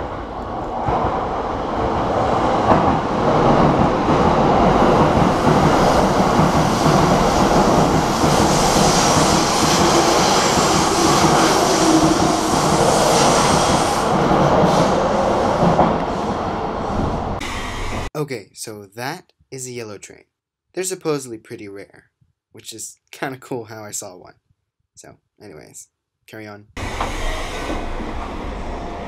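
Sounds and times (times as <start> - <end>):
train wheels rushing on rail: 0.0 - 18.1, 26.8 - 29.0.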